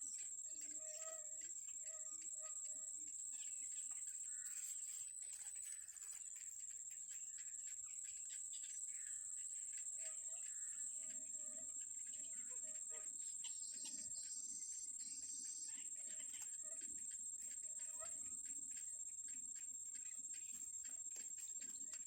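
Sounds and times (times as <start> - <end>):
high-pitched insect drone: 0.0 - 7.5.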